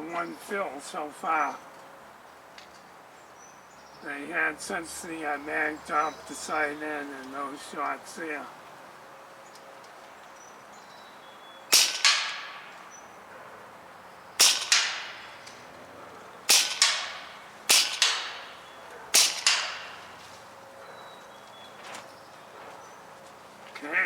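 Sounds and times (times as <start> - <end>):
pellet hitting target: 11.7 - 12.8, 14.4 - 15.6, 16.5 - 20.2
air rifle shots: 11.7 - 13.0, 14.4 - 15.7, 16.4 - 20.5.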